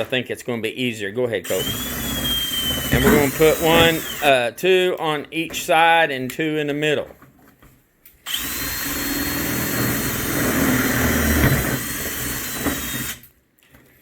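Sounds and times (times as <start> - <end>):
electric drill whining: 1.5 - 4.3, 8.3 - 13.3.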